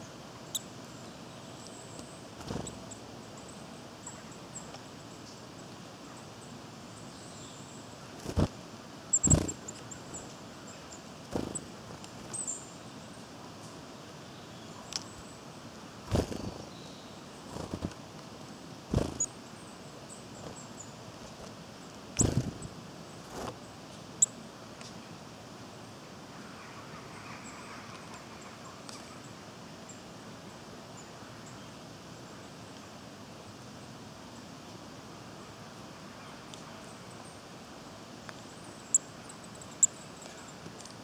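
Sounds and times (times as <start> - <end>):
steady background hiss: 0.0 - 41.0
faint high-pitched bird calls: 6.0 - 11.7, 26.3 - 30.0, 38.4 - 40.7.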